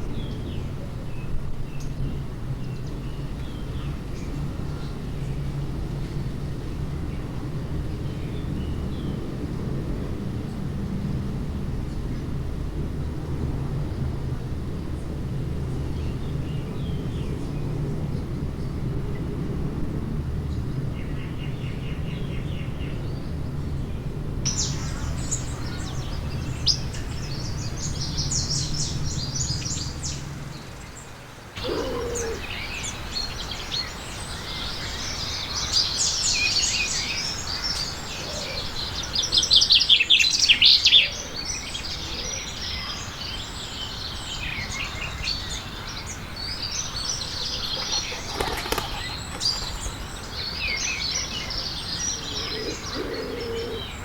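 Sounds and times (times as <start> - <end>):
birds chirping and twittering: 20.5 - 54.0.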